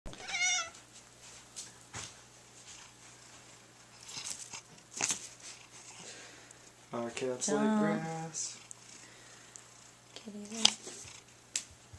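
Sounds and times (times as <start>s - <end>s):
cat chewing grass: 2.7s - 6.9s.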